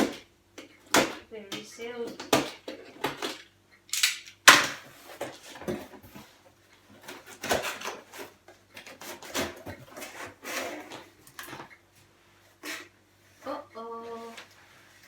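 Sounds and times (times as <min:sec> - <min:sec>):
cardboard packaging scraping: 0:04.9 - 0:11.7, 0:12.5 - 0:13.0.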